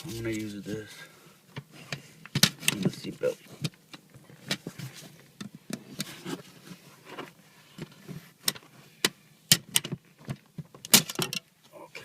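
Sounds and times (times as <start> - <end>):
plastic scraping and rubbing: 2.5 - 8.7.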